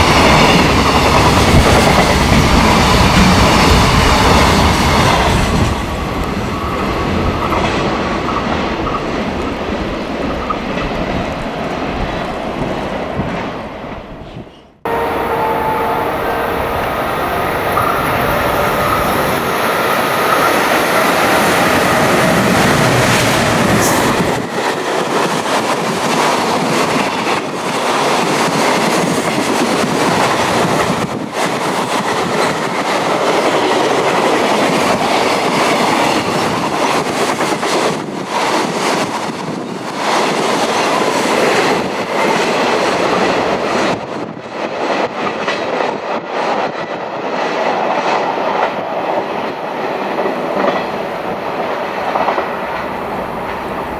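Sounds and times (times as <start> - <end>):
freight train passing: 0.0 - 53.9.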